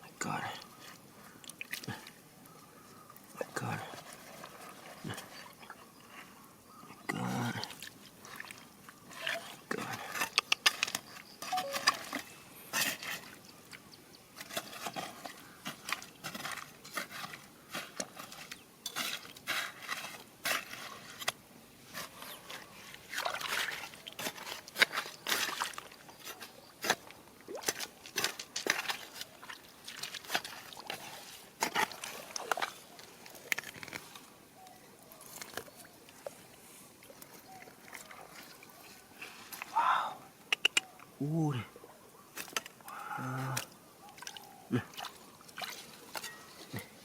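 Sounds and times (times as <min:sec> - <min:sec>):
water splashing and sloshing: 0:00.6 - 0:06.3, 0:07.3 - 0:39.8, 0:42.3 - 0:47.0.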